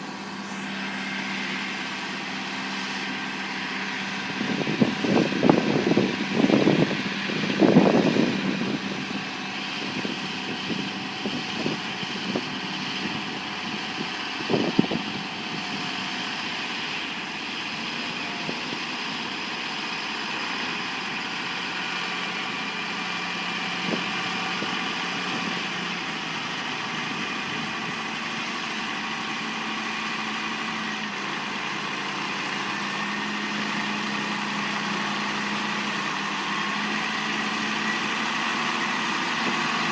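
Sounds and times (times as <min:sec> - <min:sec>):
heavy engine idling: 0:00.0 - 0:39.9.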